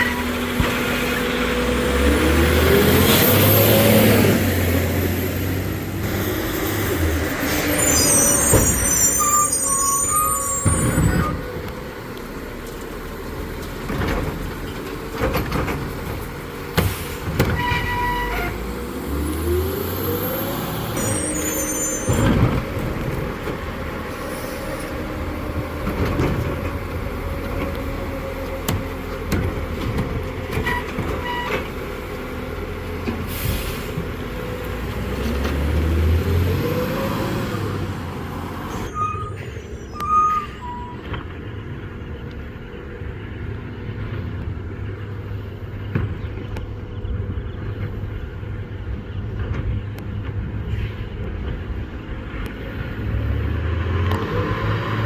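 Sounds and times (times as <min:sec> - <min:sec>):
diesel engine revving: 0:00.0 - 0:55.0
short electronic beeps: 0:05.9 - 0:11.4
carts and trash banging: 0:20.8 - 0:24.0.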